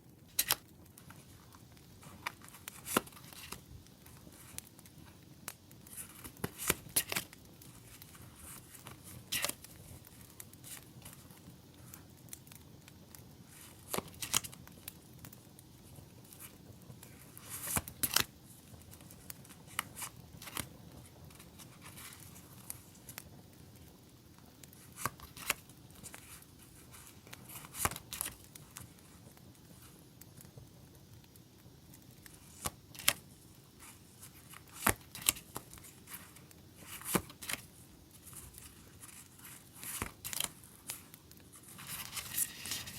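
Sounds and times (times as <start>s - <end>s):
quiet steady hiss: 0.0s - 42.9s
paper and plastic rustling: 0.3s - 5.2s, 5.8s - 11.3s, 32.3s - 42.9s.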